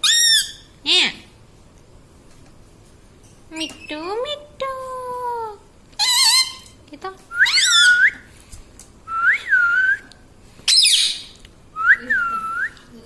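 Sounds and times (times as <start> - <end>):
parrot whistling calls: 0.0 - 0.7, 6.0 - 6.7, 7.3 - 8.3, 10.7 - 12.8.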